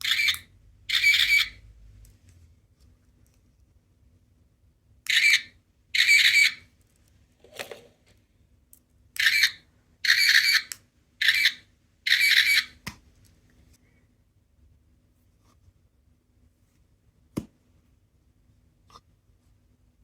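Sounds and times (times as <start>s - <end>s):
squeaky toy squawks: 0.0s - 1.6s, 5.1s - 6.7s, 9.2s - 12.8s.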